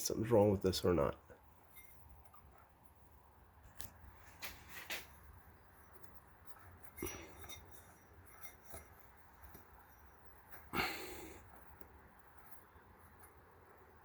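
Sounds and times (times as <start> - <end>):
scrapes and clicks of engine parts: 3.7 - 10.7.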